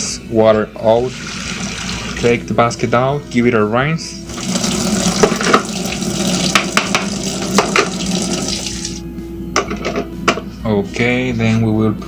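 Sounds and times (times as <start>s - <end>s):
kitchen tap running: 1.0s - 2.3s, 4.3s - 9.0s
basket knocking against sink: 6.4s - 8.4s.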